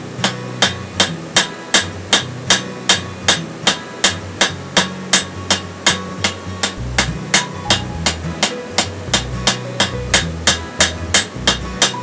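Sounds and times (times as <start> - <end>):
hammer striking metal on anvil: 0.2 - 12.0.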